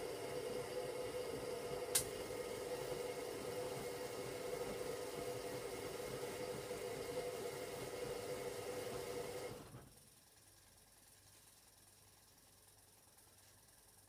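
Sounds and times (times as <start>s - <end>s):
washing machine whirring: 0.0s - 11.2s.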